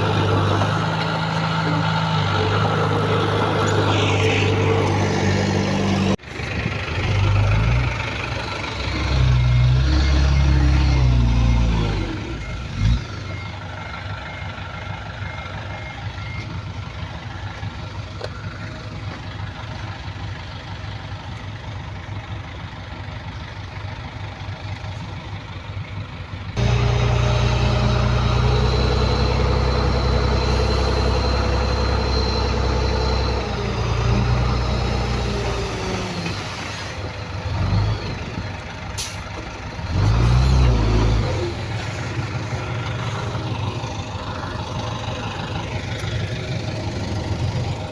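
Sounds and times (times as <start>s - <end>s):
heavy diesel machinery engines: 0.0s - 47.9s
reversing alarm beeping: 8.9s - 16.8s, 26.6s - 36.0s.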